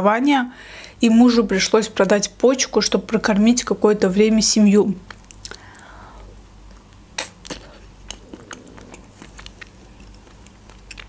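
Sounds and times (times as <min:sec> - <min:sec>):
chewing ice cream bar: 0:06.7 - 0:11.0.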